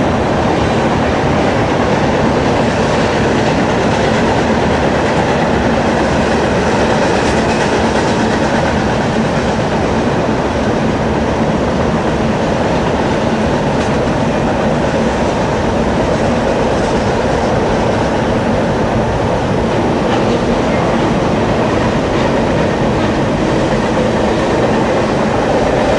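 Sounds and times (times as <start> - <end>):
train rumbling over rails: 0.0 - 25.9.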